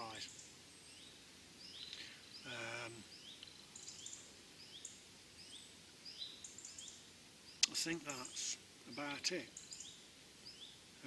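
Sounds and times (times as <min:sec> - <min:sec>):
man humming: 0:02.5 - 0:03.0.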